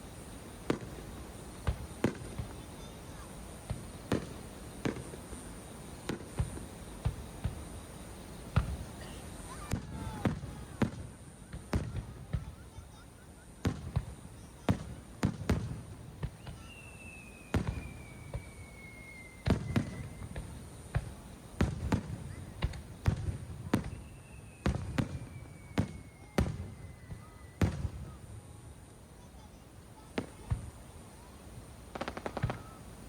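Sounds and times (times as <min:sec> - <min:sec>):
fireworks booming: 0:00.0 - 0:13.0, 0:13.6 - 0:28.6, 0:30.0 - 0:30.8, 0:31.9 - 0:33.0
whistle sliding down in pitch: 0:16.4 - 0:20.3.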